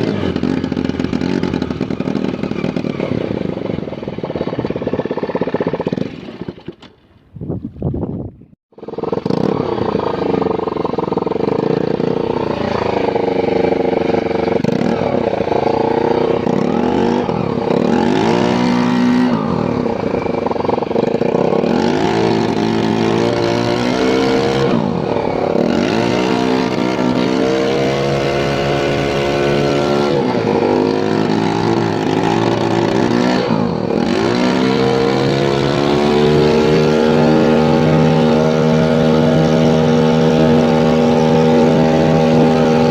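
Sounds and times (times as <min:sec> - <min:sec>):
motorboat engine running hard: 0:08.7 - 0:42.9.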